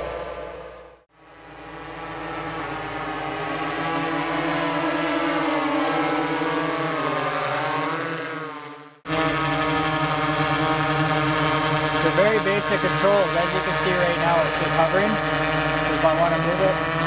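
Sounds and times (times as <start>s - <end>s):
model helicopter whine: 0.0s - 17.0s.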